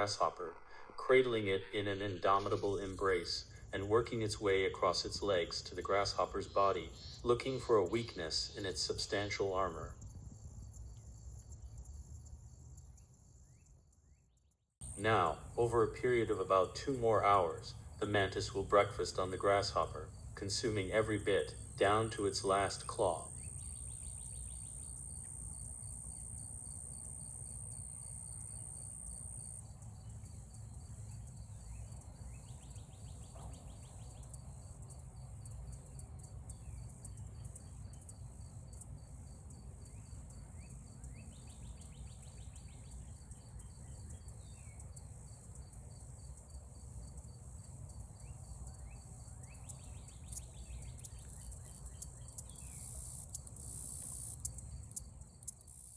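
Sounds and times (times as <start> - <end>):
low rumble: 0.0 - 3.3
crickets chirping: 0.0 - 55.9.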